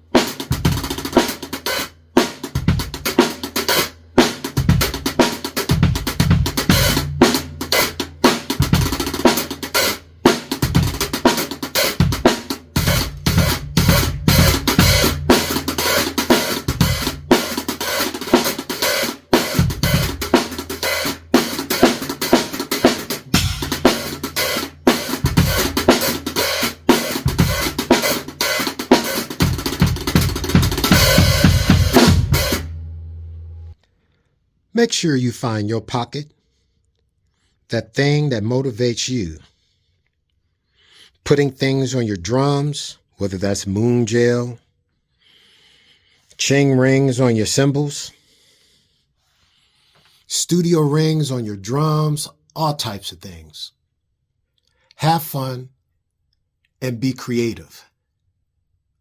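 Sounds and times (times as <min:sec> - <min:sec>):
drum kit groove: 0:00.0 - 0:33.0.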